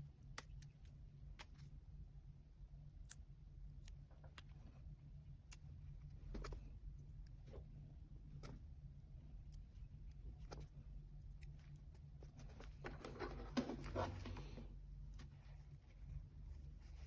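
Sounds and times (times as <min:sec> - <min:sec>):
low steady hum: 0:00.0 - 0:17.0
paper and stickers being handled: 0:11.4 - 0:17.0.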